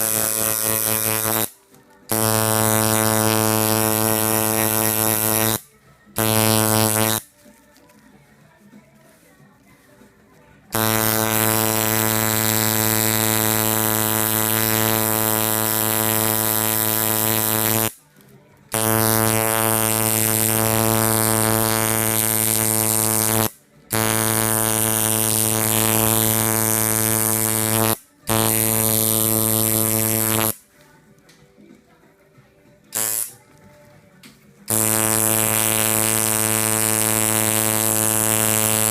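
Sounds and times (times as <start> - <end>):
tattoo machine buzzing: 0.0 - 5.6, 6.2 - 7.3, 10.7 - 18.0, 18.7 - 30.6, 33.0 - 33.4, 34.7 - 38.9.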